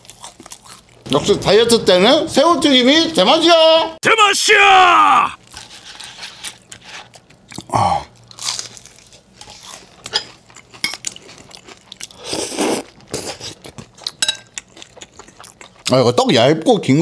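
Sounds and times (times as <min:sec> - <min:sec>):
crunching and chewing fried food: 0:00.0 - 0:01.1, 0:05.4 - 0:16.0.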